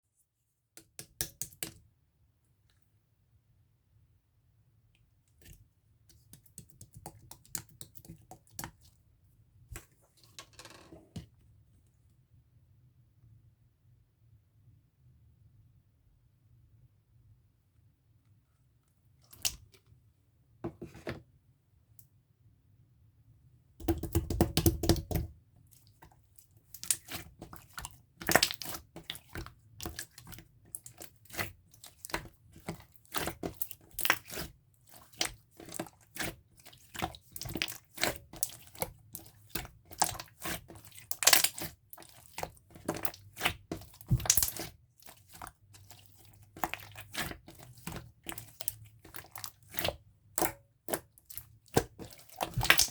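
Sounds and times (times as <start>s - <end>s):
slime squishing wet pops: 26.7s - 52.9s.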